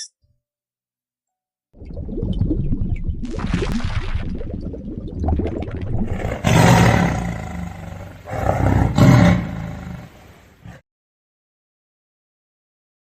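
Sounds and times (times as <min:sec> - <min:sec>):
large animal roaring: 0:06.1 - 0:10.8.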